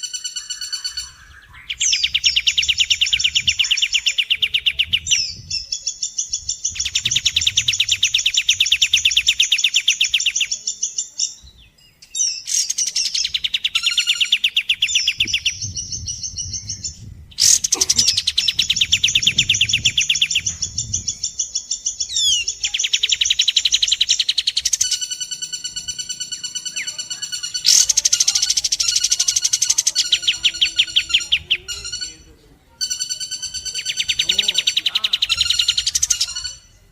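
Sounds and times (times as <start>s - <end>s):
fast high bird trills: 0.0s - 11.1s, 12.1s - 36.9s
rapid pulsed bird notes: 11.7s - 36.9s.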